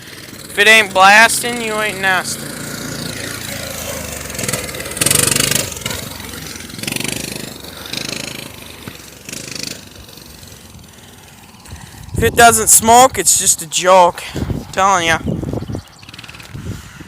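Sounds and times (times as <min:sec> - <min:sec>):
two-stroke engine revving: 0:00.0 - 0:17.0.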